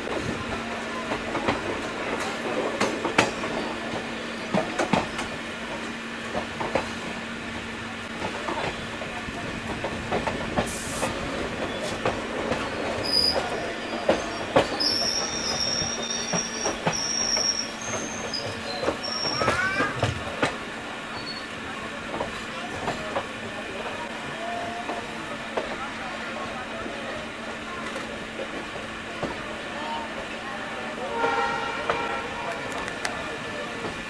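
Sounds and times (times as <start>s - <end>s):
train rumble and hum: 0.0s - 34.0s
wheels clicking over rail joints: 9.4s - 20.7s
high thin wheel squeal: 12.7s - 20.0s, 21.1s - 21.5s.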